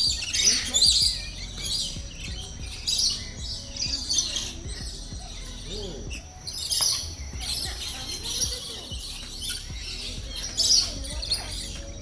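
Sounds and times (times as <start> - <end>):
chorus of birds chirping: 0.0 - 12.0.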